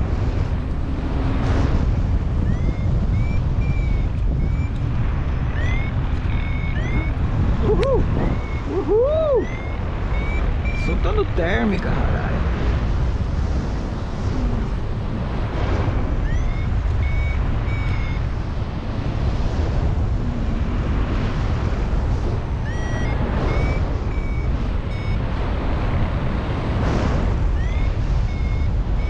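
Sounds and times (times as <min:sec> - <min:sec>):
wind noise on microphone: 0:00.0 - 0:29.0
variometer beeping rising tones: 0:02.2 - 0:12.3, 0:15.8 - 0:18.4, 0:22.5 - 0:25.3, 0:27.4 - 0:29.0.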